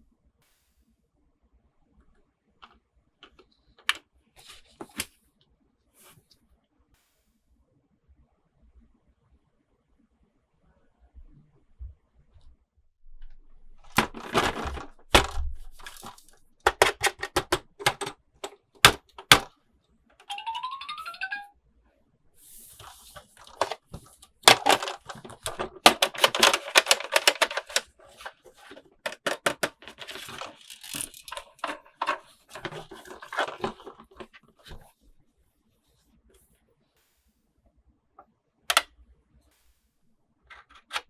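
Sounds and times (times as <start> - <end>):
plastic packaging crackling: 13.7 - 16.5, 22.8 - 34.3.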